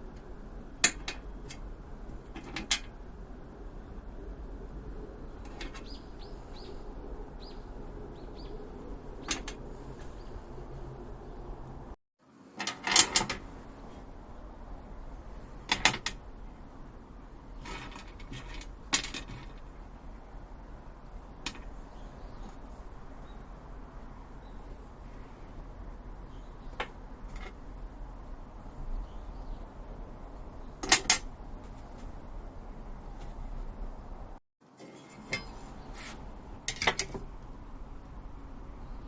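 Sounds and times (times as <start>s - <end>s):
clicks and knocks of parts: 0.2s - 1.7s, 2.3s - 2.9s, 5.4s - 6.0s, 9.2s - 9.7s, 12.5s - 13.5s, 15.6s - 16.2s, 17.6s - 19.7s, 21.4s - 21.7s, 26.7s - 27.6s, 30.8s - 32.1s, 36.6s - 37.4s.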